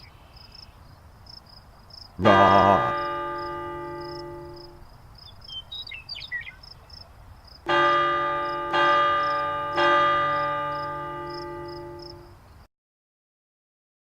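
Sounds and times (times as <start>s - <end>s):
bird chirps: 0.0s - 0.9s, 2.2s - 7.1s
bell ringing: 2.3s - 4.8s, 7.7s - 12.3s.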